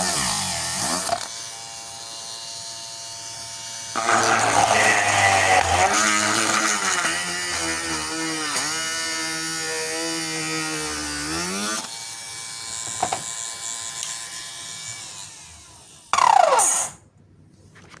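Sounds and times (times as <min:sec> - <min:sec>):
electric drill motor running: 0:00.0 - 0:16.9.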